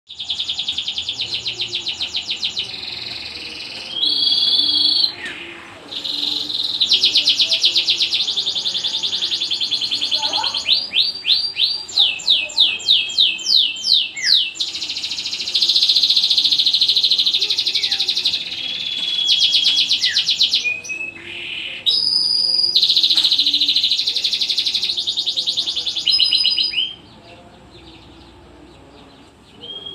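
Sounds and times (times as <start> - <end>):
canary singing trills: 0.1 - 29.9.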